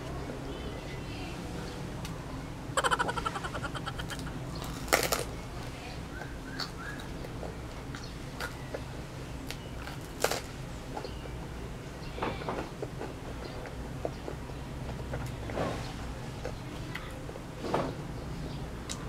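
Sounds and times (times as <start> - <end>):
chewing and crunching crisp bread: 9.4 - 10.6.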